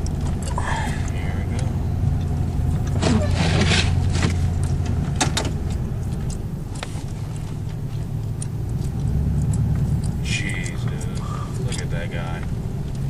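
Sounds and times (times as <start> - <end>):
car engine hum from inside: 0.0 - 13.0
sharp clicks: 4.6 - 13.0.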